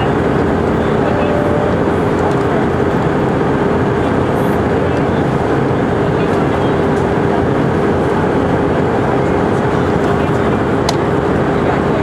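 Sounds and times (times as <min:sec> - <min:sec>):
low hum: 0:00.0 - 0:04.1
jet engines and airflow rushing: 0:00.0 - 0:12.0.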